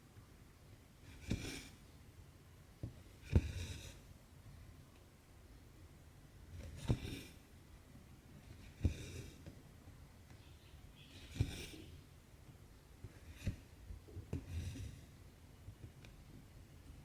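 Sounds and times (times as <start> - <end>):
thread drawn with a rasp: 1.0 - 1.8, 3.1 - 4.0, 8.5 - 9.4, 11.1 - 12.0, 13.0 - 13.8, 14.4 - 15.0.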